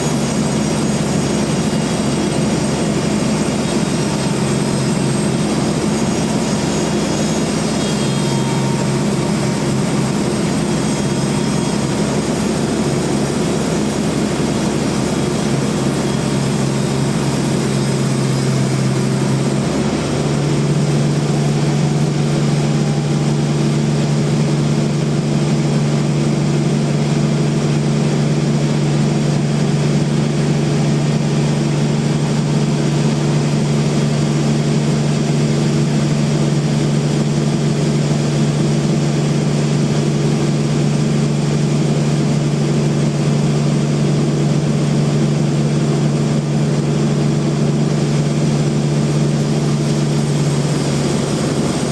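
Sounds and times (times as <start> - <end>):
machine hiss: 0.0 - 26.0, 48.5 - 51.9
band sawmill machine hum: 0.0 - 51.9.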